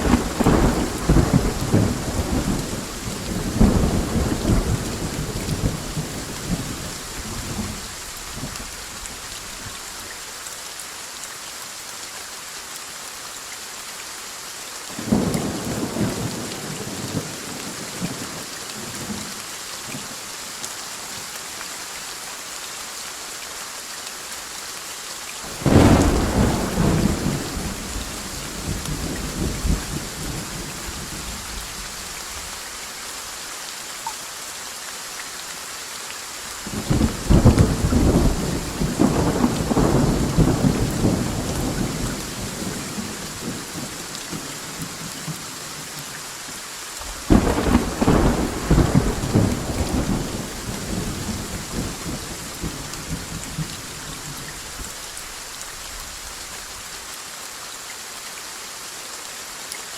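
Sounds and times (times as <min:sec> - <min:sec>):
rolling thunder: 0:00.0 - 0:07.8, 0:25.6 - 0:30.6, 0:36.7 - 0:43.8, 0:47.2 - 0:53.7
heavy rain hissing: 0:00.0 - 0:59.9.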